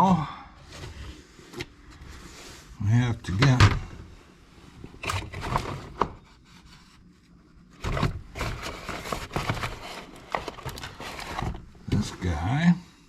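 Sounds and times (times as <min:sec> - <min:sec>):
rubbing and scraping: 0:05.2 - 0:12.2.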